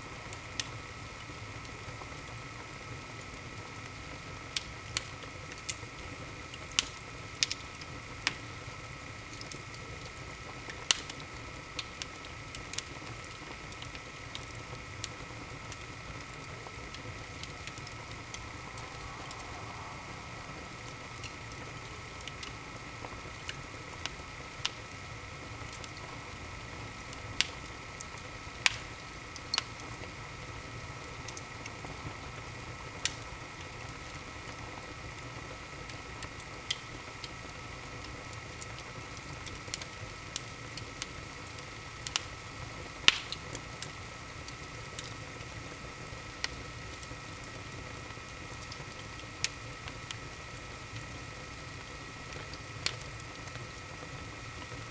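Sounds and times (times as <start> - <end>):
fire soft hiss: 0.0 - 54.9
wood fire crackles and pops: 0.0 - 54.9.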